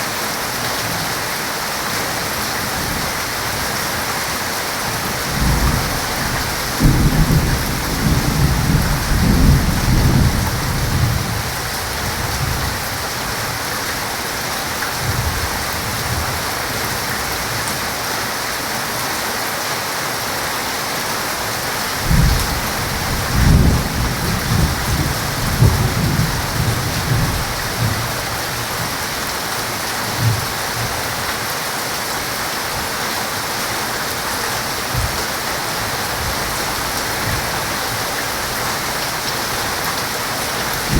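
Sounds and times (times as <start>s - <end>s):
heavy rain falling: 0.0s - 40.9s
thunder rumbling: 5.2s - 12.9s, 22.0s - 28.6s.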